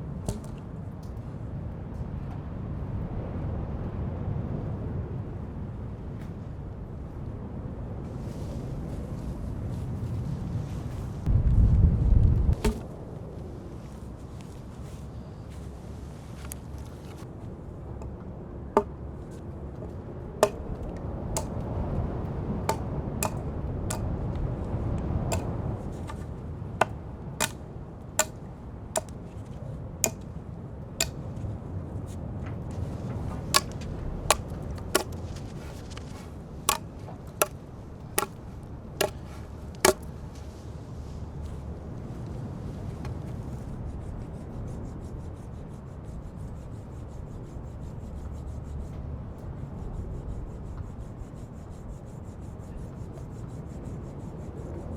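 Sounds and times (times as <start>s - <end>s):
axe chopping wood: 0.3s - 0.6s, 12.6s - 12.9s, 20.4s - 21.6s, 22.7s - 24.2s, 25.3s - 26.2s, 26.8s - 27.6s, 28.2s - 29.2s, 30.0s - 30.3s, 31.0s - 31.2s, 33.5s - 37.6s, 38.2s - 40.1s.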